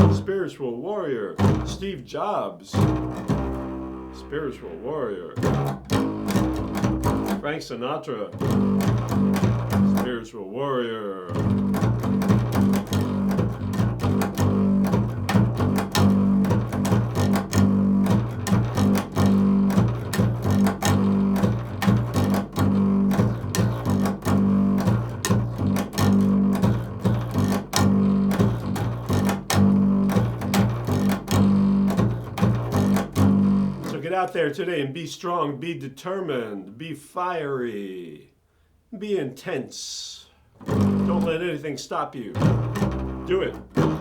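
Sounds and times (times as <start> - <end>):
rapid plucked strings: 0.0 - 0.4, 1.4 - 10.3, 11.3 - 34.2, 40.6 - 41.6, 42.2 - 44.0.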